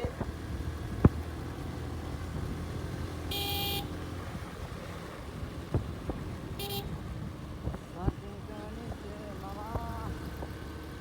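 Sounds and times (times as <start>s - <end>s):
motorcycle engine rumble: 0.0s - 11.0s
horn beeping: 3.3s - 3.9s, 6.6s - 6.9s.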